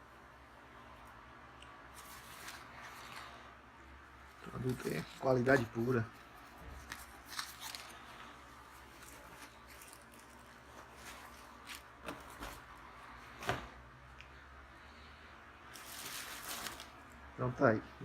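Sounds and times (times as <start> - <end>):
faint rustling of packaging: 1.8 - 14.4, 15.6 - 17.3.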